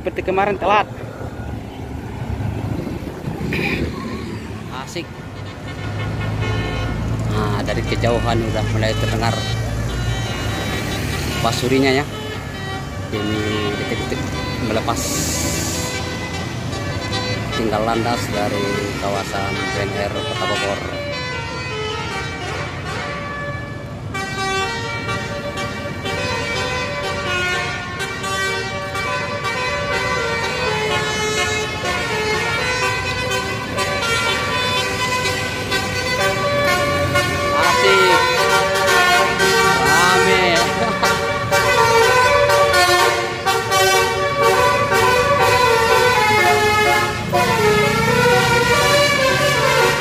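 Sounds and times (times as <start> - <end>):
low vehicle rumble: 0.0 - 5.5
vehicle engine rumbling: 0.0 - 50.0
musical bus horn playing tune: 5.2 - 50.0.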